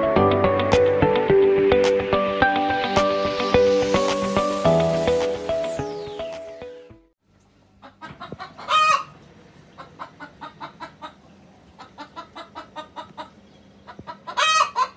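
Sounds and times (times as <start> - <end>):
hen squawking: 7.8 - 9.2, 11.8 - 14.9
hen clucking: 7.8 - 14.9.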